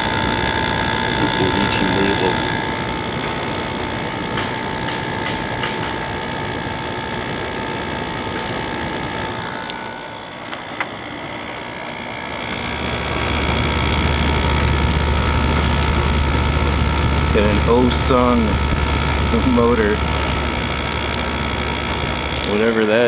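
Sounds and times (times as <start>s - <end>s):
deep hum: 0.0s - 10.3s, 11.0s - 23.0s
air conditioner whirring: 0.0s - 23.0s.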